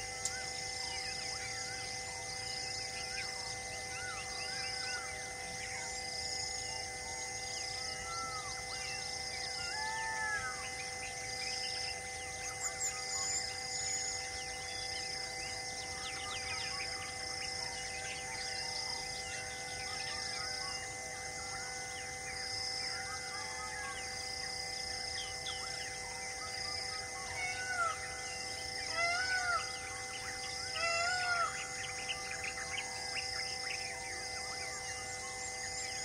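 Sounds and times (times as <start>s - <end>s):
forest birds chirping: 0.0s - 36.0s
loud arching bird calls: 7.8s - 11.6s, 26.9s - 34.2s
high repeating bird call: 28.9s - 33.5s.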